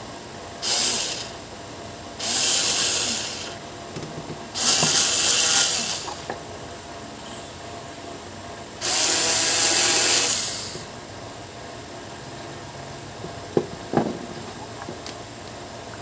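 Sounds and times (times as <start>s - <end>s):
small electric motor whirring: 0.6s - 1.4s, 2.2s - 3.6s, 4.6s - 6.3s, 8.8s - 10.9s.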